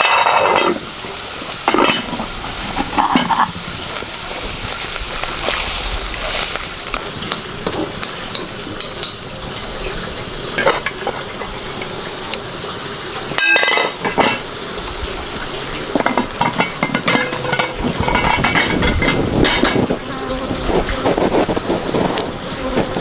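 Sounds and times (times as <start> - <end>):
utensil scraping and clinking pan: 0.0 - 0.8, 1.6 - 3.6, 13.4 - 14.5, 15.9 - 19.8
food sizzling in a pan: 0.0 - 23.0.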